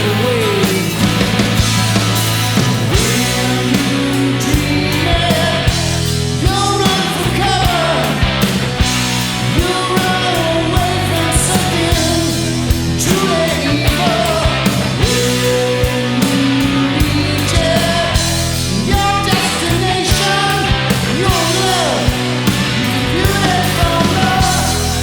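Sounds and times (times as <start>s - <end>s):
steady drum hits: 0.0s - 7.3s
bending lead melody: 0.0s - 25.0s
rock band playing: 0.0s - 25.0s.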